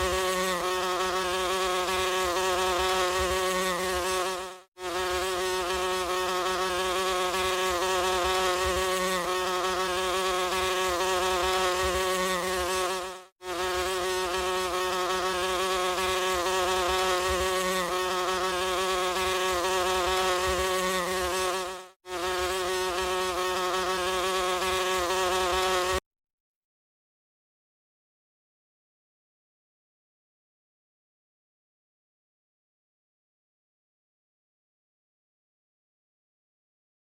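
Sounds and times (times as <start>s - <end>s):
flies buzzing: 0.0s - 26.0s.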